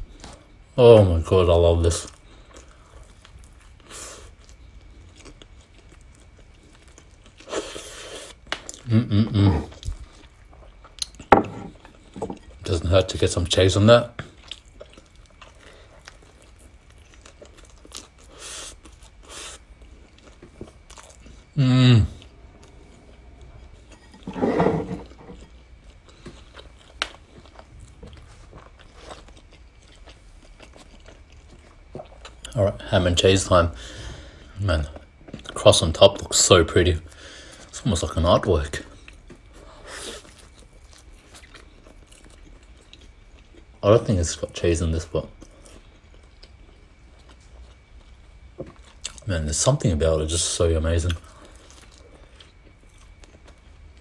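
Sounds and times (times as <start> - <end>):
chewing bread: 1.8 - 9.0, 9.7 - 21.6, 25.0 - 33.2, 34.4 - 54.0
chewing with wet mouth clicks: 14.2 - 21.3, 25.8 - 32.6, 40.2 - 43.8, 45.4 - 49.2
breathy exhale: 33.8 - 34.5.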